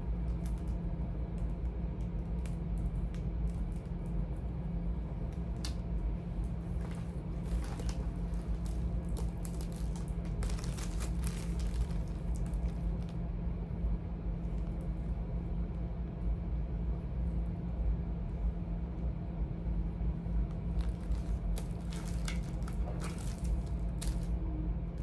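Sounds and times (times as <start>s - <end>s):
steady low hum: 0.0s - 25.0s
cords and plastic rustling: 6.4s - 13.2s, 20.7s - 24.4s.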